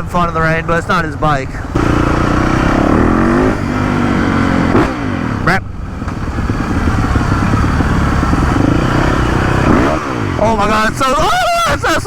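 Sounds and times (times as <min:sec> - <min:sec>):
dirt bike engine revving: 0:01.7 - 0:11.4.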